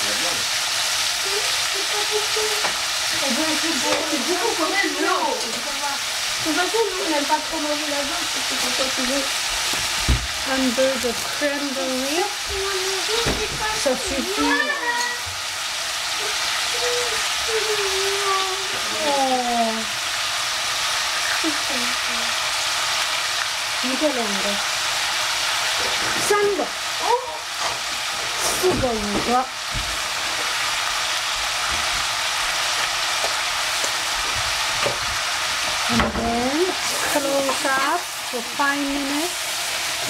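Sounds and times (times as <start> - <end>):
vegetables sizzling in oil: 0.0 - 40.0
person speaking: 10.5 - 15.2.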